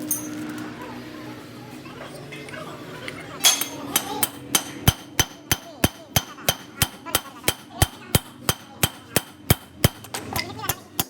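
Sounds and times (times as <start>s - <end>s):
hammer striking metal: 3.4s - 11.0s.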